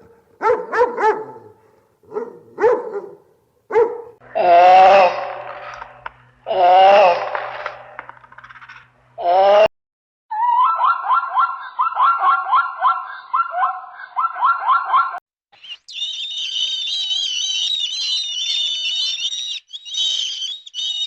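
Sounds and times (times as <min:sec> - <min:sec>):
high twittering birdsong: 0:15.6 - 0:21.0.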